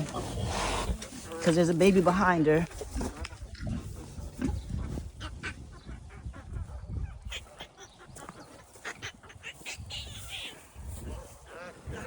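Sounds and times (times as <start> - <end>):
piglets squeaking: 4.8 - 12.0.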